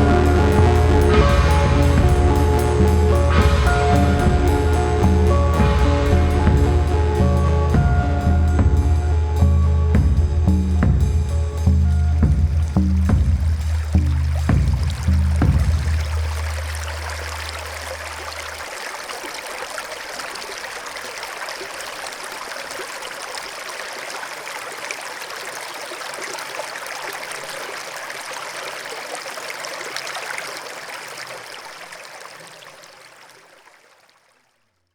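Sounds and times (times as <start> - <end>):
low bass note music: 0.0 - 18.4
stream water rushing: 0.0 - 34.4.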